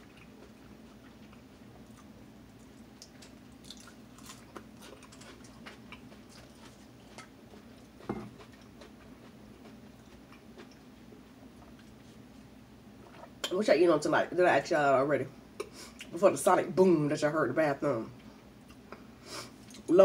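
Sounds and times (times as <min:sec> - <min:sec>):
person chewing lettuce: 0:00.0 - 0:12.3.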